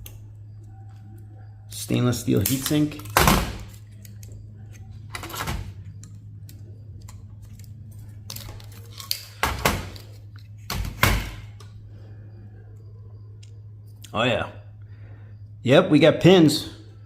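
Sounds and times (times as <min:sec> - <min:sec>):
low hum: 0:11.3 - 0:15.6.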